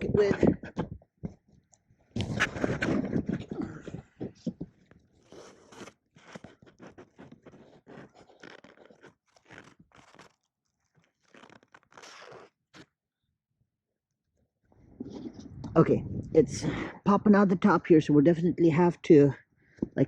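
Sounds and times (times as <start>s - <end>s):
crunching and crackling: 2.2s - 12.9s.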